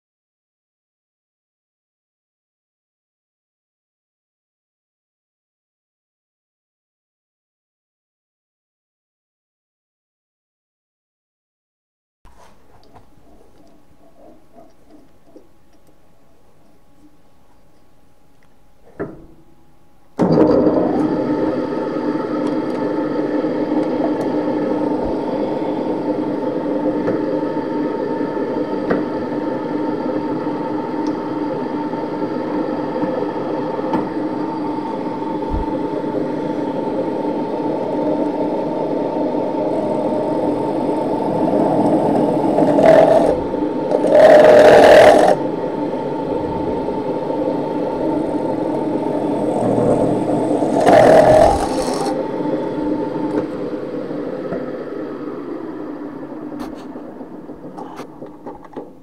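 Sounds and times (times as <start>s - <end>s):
rotary power tool whirring: 40.8s - 45.4s, 47.8s - 52.3s
tool scraping sheet metal: 49.6s - 52.2s.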